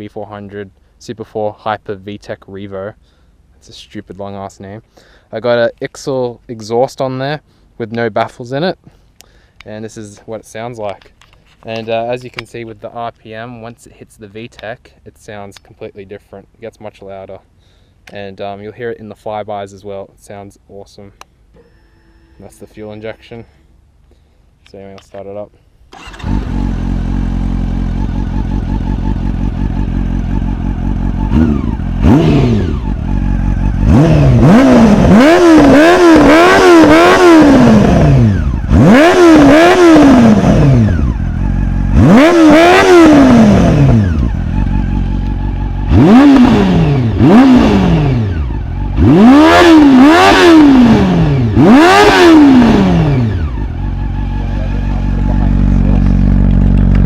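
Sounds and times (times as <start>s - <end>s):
motorcycle engine revving: 25.9s - 57.0s
motorcycle engine starting and idling: 25.9s - 57.0s.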